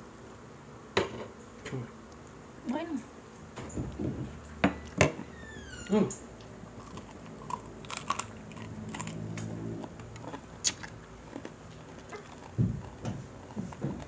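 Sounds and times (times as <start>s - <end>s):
crunching and chewing crispy pork: 6.6s - 14.0s.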